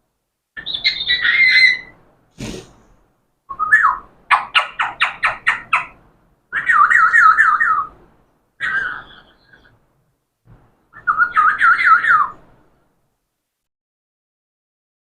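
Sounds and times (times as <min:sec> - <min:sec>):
parrot whistling and calling: 0:00.6 - 0:01.9, 0:03.5 - 0:08.0, 0:08.6 - 0:09.7, 0:11.0 - 0:12.4
parrot chirps: 0:00.6 - 0:02.0, 0:03.5 - 0:08.0.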